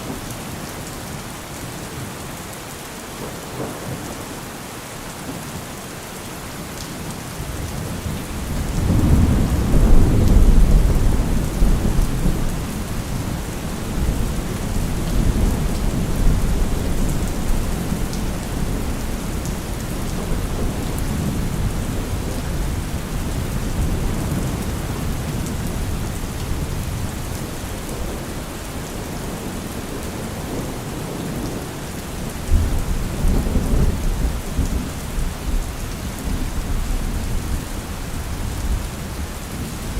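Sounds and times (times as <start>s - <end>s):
rain falling: 0.0s - 39.9s
thunder rumbling: 7.7s - 29.4s.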